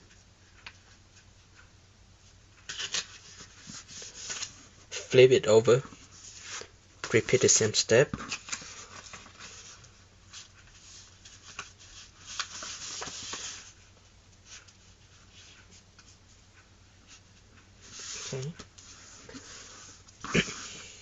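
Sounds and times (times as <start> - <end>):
paper rustling and crinkling: 2.7 - 4.6, 8.1 - 13.8.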